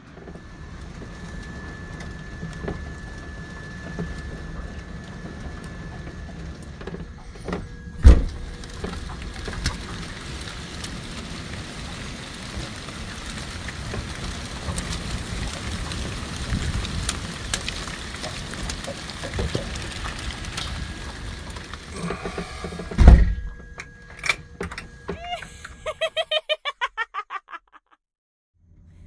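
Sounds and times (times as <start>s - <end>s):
raindrops ticking on surfaces: 0.0s - 23.0s
heavy rain falling: 0.0s - 23.8s
loud sharp thump: 8.0s - 8.4s, 23.0s - 23.4s.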